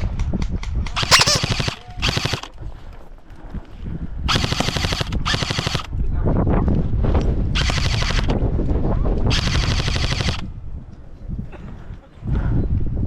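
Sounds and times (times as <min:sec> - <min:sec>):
airsoft rifle firing bursts: 0:01.1 - 0:02.5.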